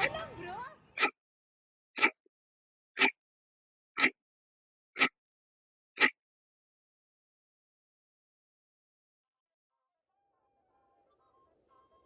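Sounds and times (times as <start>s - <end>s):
sharp ticks: 4.0s - 4.2s, 5.0s - 5.2s.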